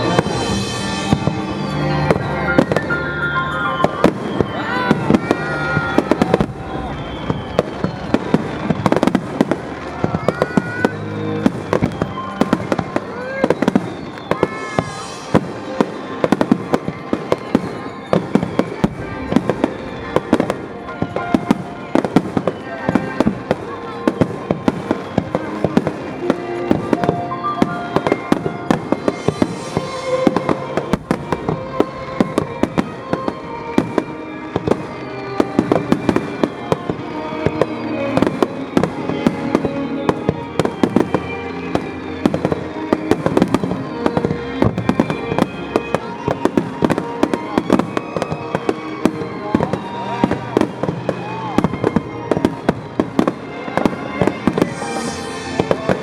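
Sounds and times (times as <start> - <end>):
fireworks bangs: 0.0 - 56.0
music playing: 0.0 - 56.0.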